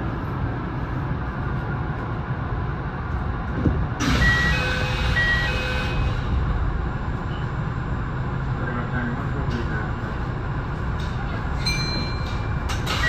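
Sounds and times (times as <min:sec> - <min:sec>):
electric train rumbling: 0:00.0 - 0:13.0
level-crossing warning bell: 0:04.0 - 0:06.3, 0:11.2 - 0:13.0.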